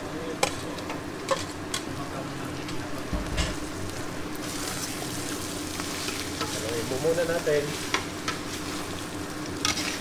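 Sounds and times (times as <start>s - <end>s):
meat sizzling in hot oil: 2.9s - 10.0s.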